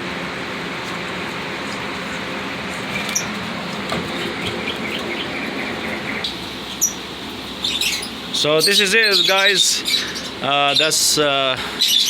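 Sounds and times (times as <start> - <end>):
air cooler hissing: 0.0 - 12.0
lovebirds chirping: 4.1 - 12.0.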